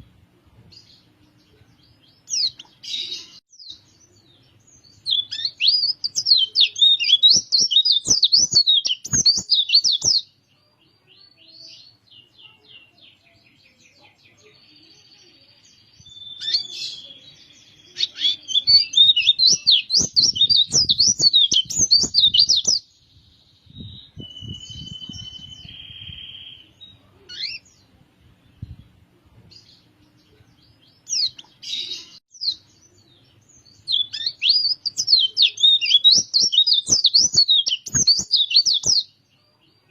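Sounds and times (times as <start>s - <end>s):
soft bird chirps: 0.0s - 39.9s
songbird twittering: 16.0s - 26.7s, 31.0s - 39.1s.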